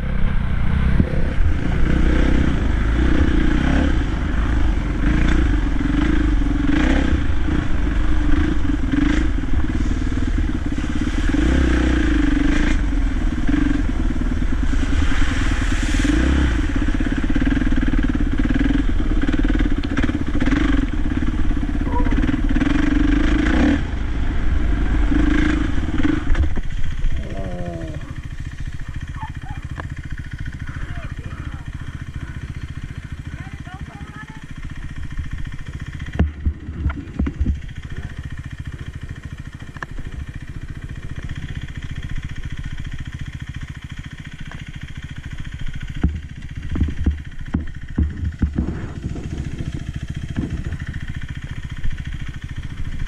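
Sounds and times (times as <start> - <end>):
dirt bike engine running: 0.0 - 53.0
knocks and clatter: 36.1 - 37.7, 46.0 - 49.6.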